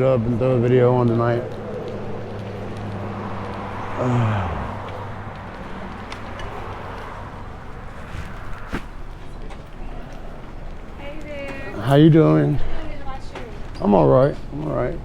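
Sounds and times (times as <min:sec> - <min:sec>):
engine winding down: 0:00.1 - 0:07.9
faint clicks: 0:01.0 - 0:07.8.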